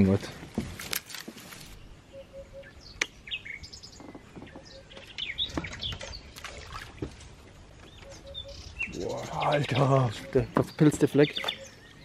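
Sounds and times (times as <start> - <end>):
low bird call: 1.8 - 6.3, 7.8 - 12.0.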